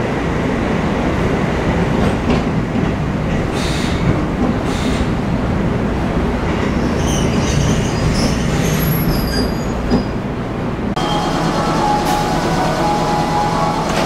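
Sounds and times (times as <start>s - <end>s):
train wheel and motor rumble: 0.0s - 14.0s
high wheel squeals: 6.8s - 10.2s.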